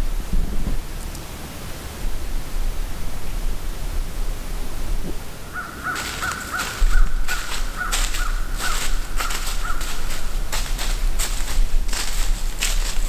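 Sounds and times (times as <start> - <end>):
low steady rumble: 0.0 - 5.6, 8.4 - 13.0
bird calling: 5.4 - 10.9.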